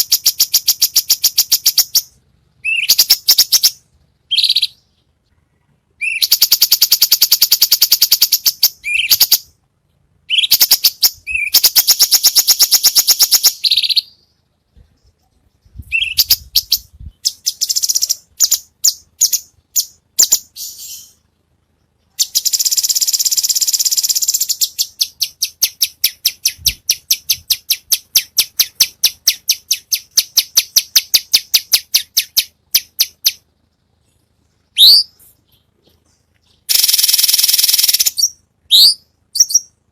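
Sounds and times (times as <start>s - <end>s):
songbird trills: 0.0s - 9.6s, 10.2s - 39.9s.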